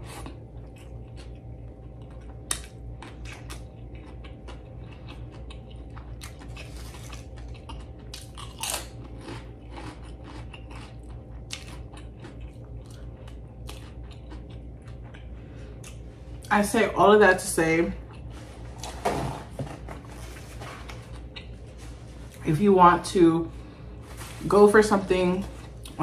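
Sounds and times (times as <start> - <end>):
person chewing chips: 0.0 - 16.5, 17.9 - 19.0, 20.0 - 22.4, 25.4 - 26.0
steady low hum: 0.0 - 26.0.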